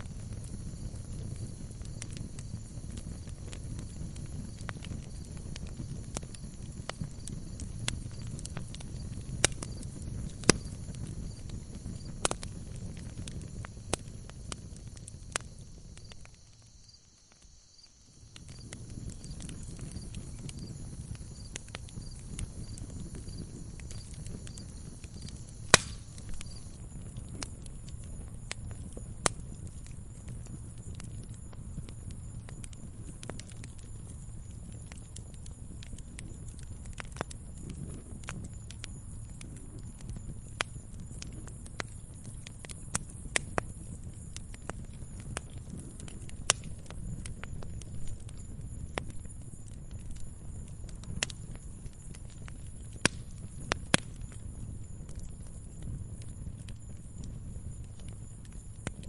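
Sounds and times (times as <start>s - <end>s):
loud pop from burning log: 0.0s - 16.8s, 18.3s - 27.6s, 40.5s - 49.3s, 53.0s - 54.4s
fire rumbling and crackling: 0.0s - 59.0s.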